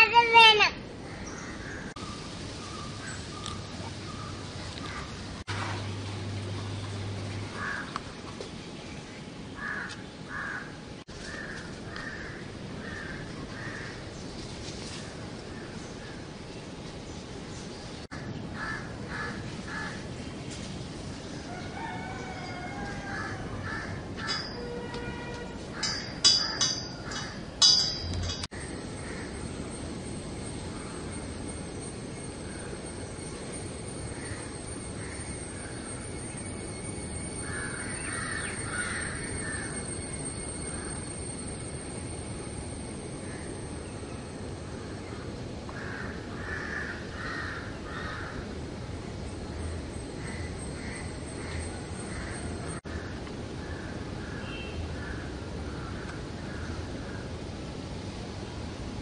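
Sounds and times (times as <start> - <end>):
steady background hiss: 0.0 - 59.0
birds calling: 0.1 - 5.4, 6.6 - 20.2, 25.7 - 29.7, 37.4 - 41.4.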